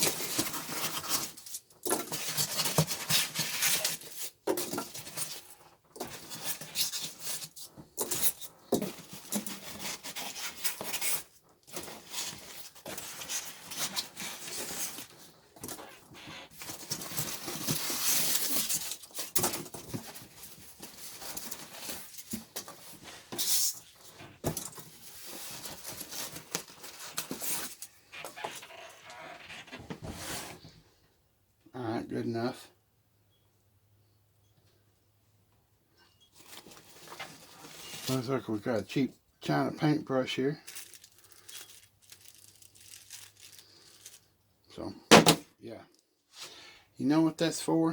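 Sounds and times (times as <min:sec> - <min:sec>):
packing materials rustling and scraping: 0:00.0 - 0:30.8, 0:36.3 - 0:38.8, 0:39.5 - 0:44.4.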